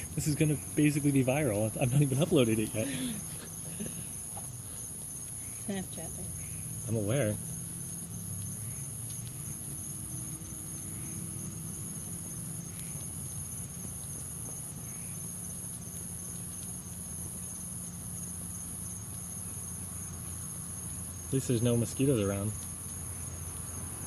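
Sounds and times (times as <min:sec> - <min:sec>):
crickets chirping: 0:00.0 - 0:24.0
faint ticks: 0:08.3 - 0:24.0.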